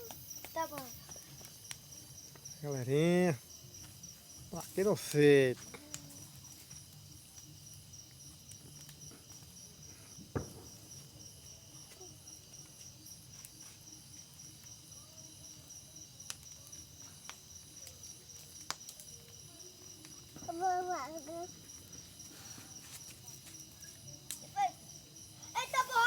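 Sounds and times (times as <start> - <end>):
crickets chirping: 0.0 - 26.0
sharp pops: 10.2 - 11.0.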